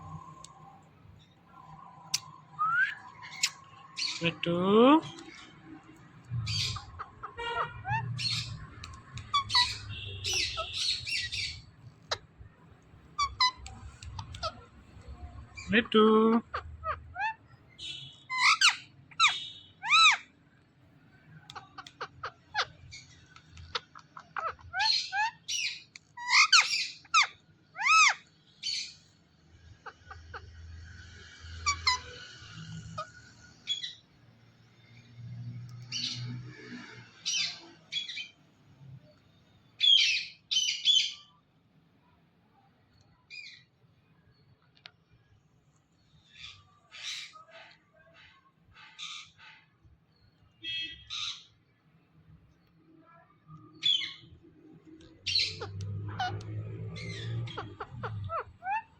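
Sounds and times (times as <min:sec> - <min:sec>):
parakeet chirping and screeching: 0:00.0 - 0:04.4, 0:05.0 - 0:15.8, 0:16.4 - 0:20.4, 0:21.1 - 0:38.4, 0:39.8 - 0:41.4, 0:46.0 - 0:51.7, 0:53.8 - 0:58.9
parakeet whistled calls: 0:01.6 - 0:04.3, 0:07.6 - 0:12.2, 0:17.2 - 0:20.3.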